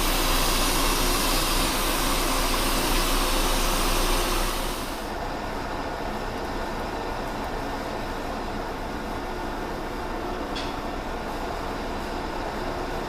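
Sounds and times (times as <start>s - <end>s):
coolant hiss: 0.0s - 5.1s
metal lathe running: 0.0s - 5.1s.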